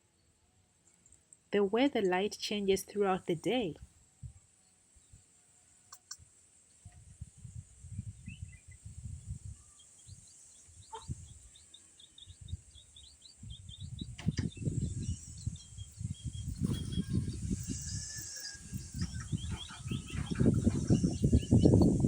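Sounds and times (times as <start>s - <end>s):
small birds chirping: 5.9s - 22.0s
wind buffeting microphone: 6.8s - 11.6s, 12.2s - 22.0s.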